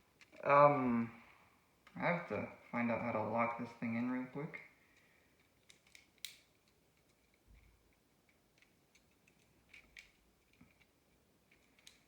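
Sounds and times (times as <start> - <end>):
clicks of plastic parts: 11.5 - 12.0.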